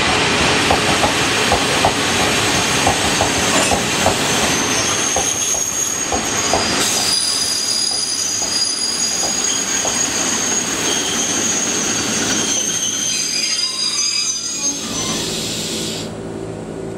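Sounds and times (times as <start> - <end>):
steel wheels squealing on rails: 1.8 - 16.2
wheels clacking over rail joints: 7.8 - 10.6.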